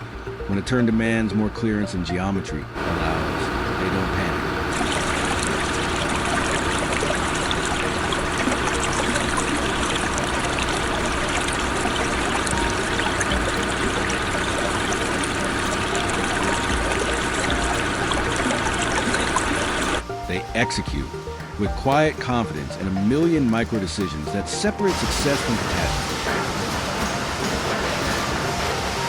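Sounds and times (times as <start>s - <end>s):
running water trickling: 4.4s - 29.0s.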